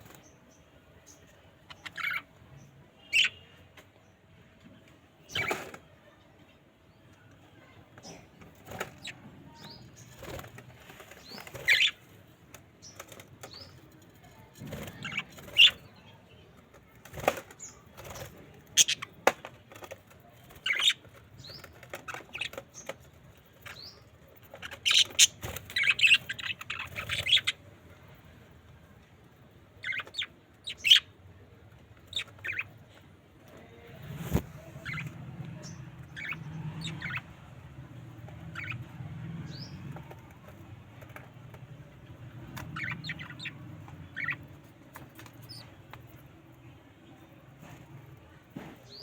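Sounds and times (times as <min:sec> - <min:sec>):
budgerigars chirping: 0:01.7 - 0:02.2, 0:11.2 - 0:12.0, 0:14.9 - 0:15.8, 0:18.7 - 0:19.2, 0:20.6 - 0:22.6, 0:23.7 - 0:27.6, 0:29.8 - 0:31.1, 0:32.1 - 0:32.7, 0:34.8 - 0:37.3, 0:38.5 - 0:39.8, 0:42.4 - 0:44.5
wings flapping: 0:34.0 - 0:35.1.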